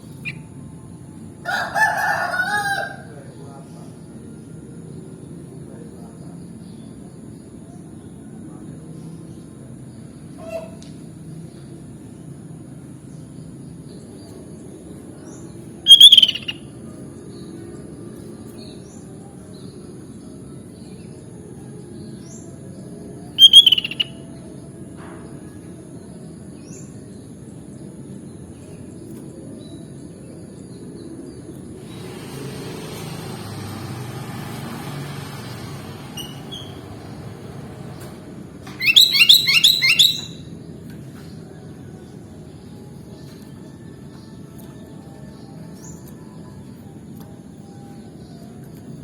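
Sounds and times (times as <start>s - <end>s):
bulbul calls: 15.9s - 16.6s, 23.4s - 24.2s, 38.7s - 40.4s
faint bird chirps: 15.9s - 16.7s, 23.4s - 24.2s, 38.7s - 40.5s
hiss: 31.9s - 35.3s.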